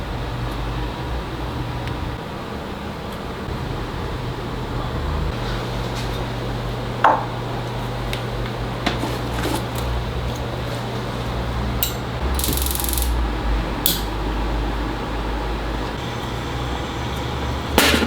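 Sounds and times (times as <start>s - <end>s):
hand tools clicking and clinking: 11.8s - 13.2s, 13.9s - 14.2s
sharp click: 11.8s - 13.2s, 13.9s - 14.2s.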